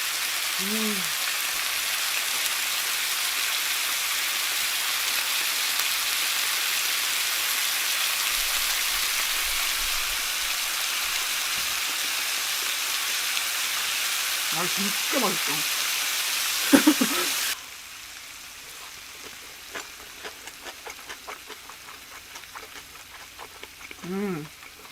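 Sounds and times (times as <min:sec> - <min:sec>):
steady hiss: 0:08.2 - 0:19.5.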